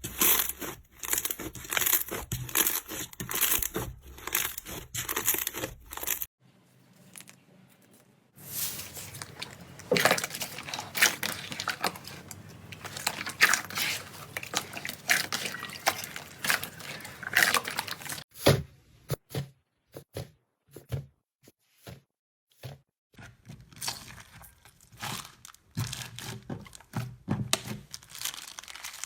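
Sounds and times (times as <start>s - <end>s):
slime squelching and crackling: 0.0s - 6.3s, 8.4s - 18.3s, 23.5s - 29.0s.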